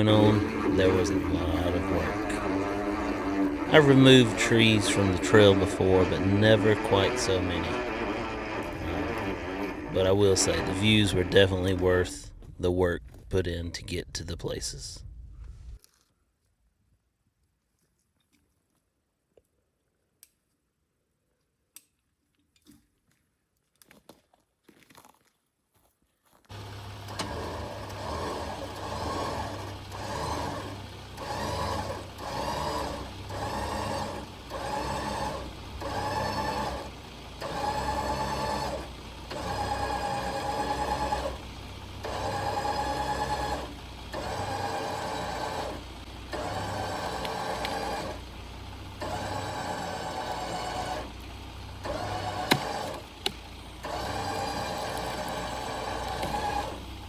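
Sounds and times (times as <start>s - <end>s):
small motor revving: 0.0s - 12.1s, 26.5s - 57.0s
sharp clicks: 51.9s - 53.5s.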